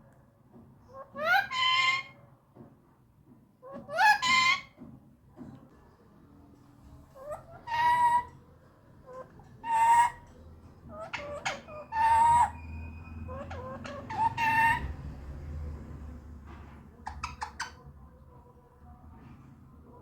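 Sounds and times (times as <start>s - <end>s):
parakeet squawking harshly: 1.2s - 2.2s, 3.9s - 4.8s, 7.2s - 8.3s, 9.6s - 10.2s, 10.9s - 14.9s.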